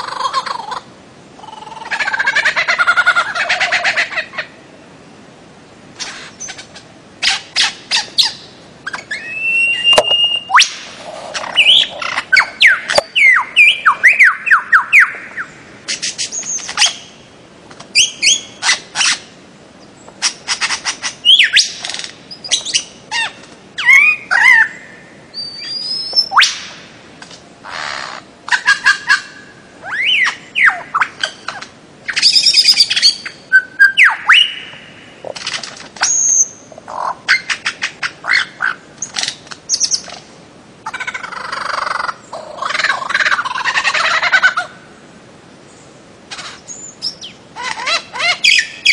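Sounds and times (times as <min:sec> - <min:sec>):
bird calling with whistled notes: 0:06.0 - 0:17.2, 0:17.9 - 0:26.8, 0:27.7 - 0:35.1, 0:36.0 - 0:40.1, 0:45.7 - 0:48.9.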